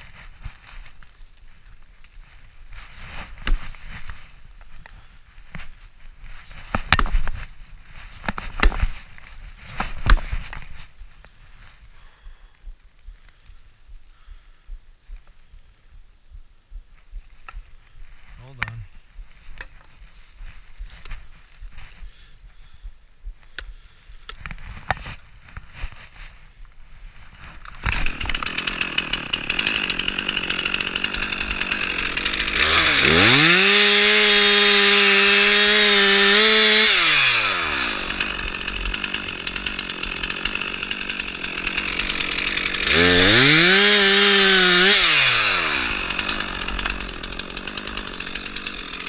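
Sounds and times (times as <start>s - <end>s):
chainsaw idling and revving: 27.4s - 49.0s.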